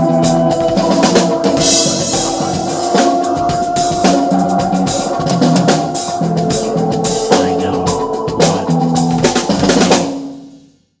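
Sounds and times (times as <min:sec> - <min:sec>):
rock music backing track: 0:00.0 - 0:10.7
drum kit playing: 0:00.0 - 0:10.8.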